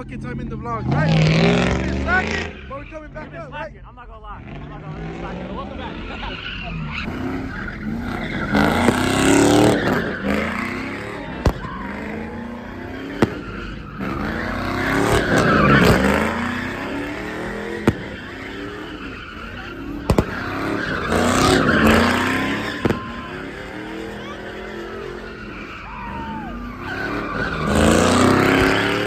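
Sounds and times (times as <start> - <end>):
car engine revving: 0.0 - 29.0
tyres screeching: 4.5 - 29.0.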